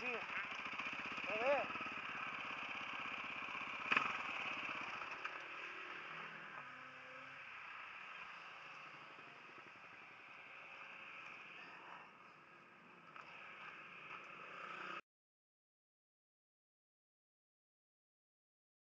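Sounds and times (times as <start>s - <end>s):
motocross bike engine: 0.0s - 15.0s.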